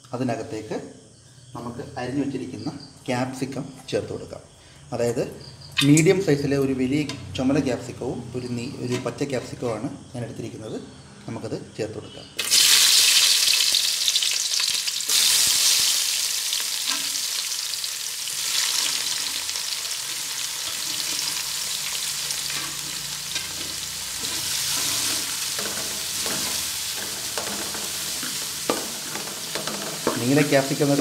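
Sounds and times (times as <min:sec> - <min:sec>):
vegetables sizzling in hot oil: 0:12.4 - 0:31.0
wooden spatula scraping a pan: 0:20.7 - 0:21.5, 0:22.5 - 0:30.5.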